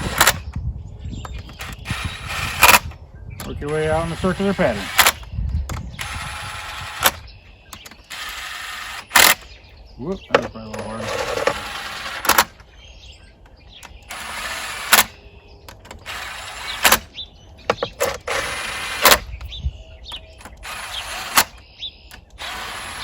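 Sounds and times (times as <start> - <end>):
wrench rasping strokes: 10.8 - 12.5, 13.8 - 17.1, 20.4 - 23.0.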